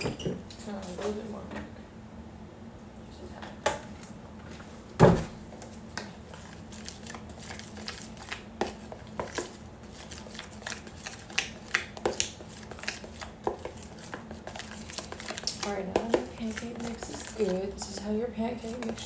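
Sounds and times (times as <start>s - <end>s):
utensil scraping against a bowl: 8.6s - 19.0s.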